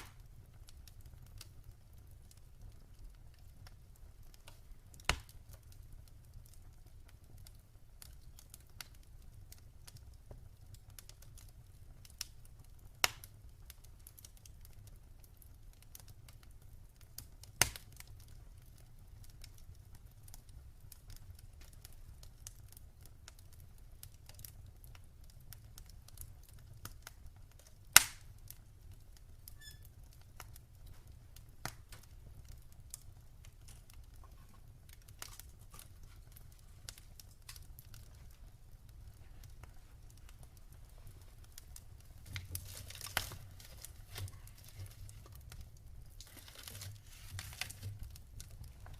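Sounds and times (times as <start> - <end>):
loud sharp pops: 0.0 - 0.3, 5.0 - 5.4, 28.0 - 28.3
wood fire crackling: 0.0 - 48.9.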